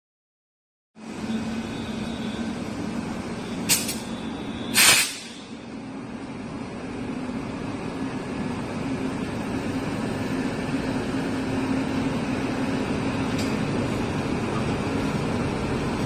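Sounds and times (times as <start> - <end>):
train diesel engine running: 1.0 - 16.0
compressed air hissing: 3.6 - 5.6.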